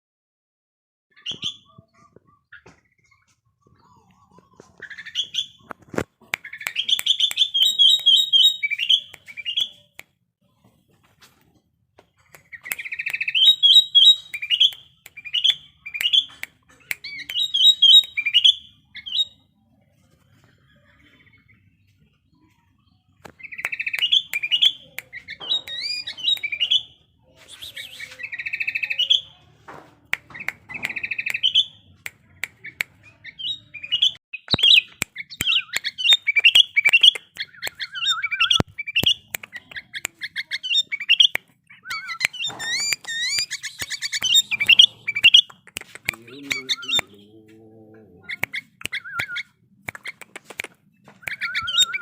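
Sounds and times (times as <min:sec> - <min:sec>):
bird calling in whistled phrases: 0:06.4 - 0:09.9, 0:12.4 - 0:16.3, 0:17.0 - 0:19.4, 0:23.4 - 0:29.3, 0:32.6 - 0:45.5, 0:48.3 - 0:49.6, 0:51.3 - 0:52.0
sharp clicks: 0:41.2 - 0:47.1, 0:48.4 - 0:52.0.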